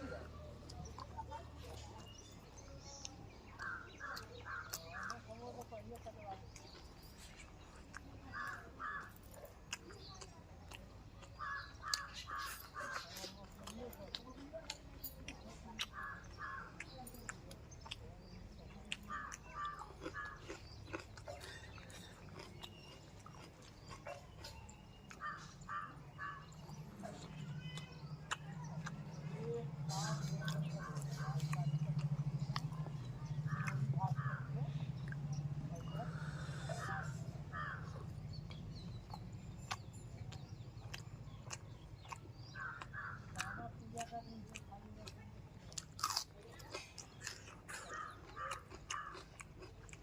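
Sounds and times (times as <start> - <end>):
chewing and wet mouth clicks: 0.1 - 50.0
crows cawing: 8.3 - 9.2, 15.9 - 16.7, 19.1 - 20.5, 25.2 - 26.5, 36.1 - 38.0, 42.5 - 43.6, 47.8 - 49.3
crow cawing: 25.2 - 26.5, 36.8 - 37.9, 42.5 - 43.6.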